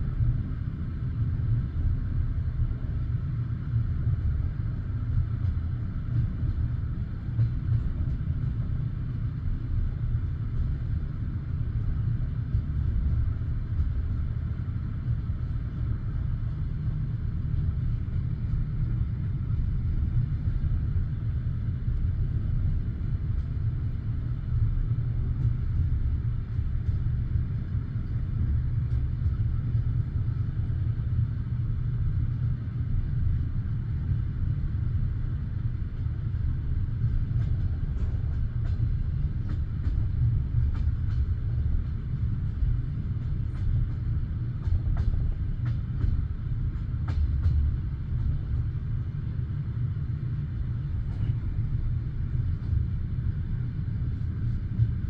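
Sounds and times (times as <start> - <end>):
train carriage rumbling on track: 0.0 - 55.0.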